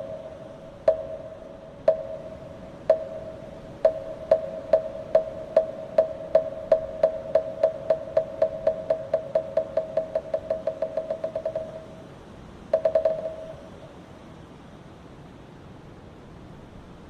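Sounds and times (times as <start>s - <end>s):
wooden fish struck with mallet: 0.9s - 2.3s, 2.9s - 12.0s, 12.8s - 13.6s.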